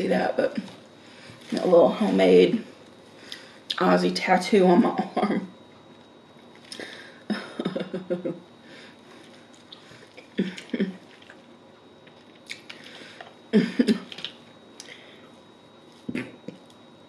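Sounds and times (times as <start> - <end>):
person chewing: 9.1 - 13.4.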